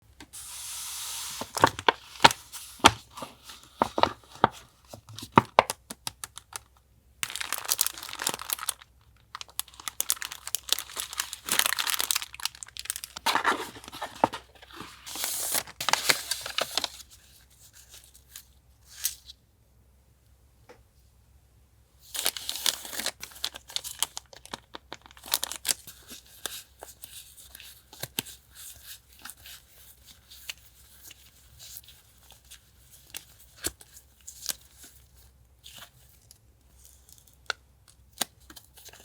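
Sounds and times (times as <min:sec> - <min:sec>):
paper tearing and crinkling: 0:10.1 - 0:16.9.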